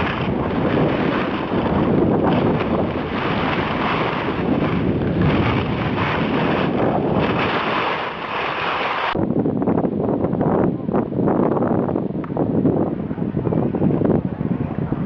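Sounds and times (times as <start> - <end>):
skis sliding on snow: 0.0 - 9.2
wind buffeting microphone: 0.0 - 15.0.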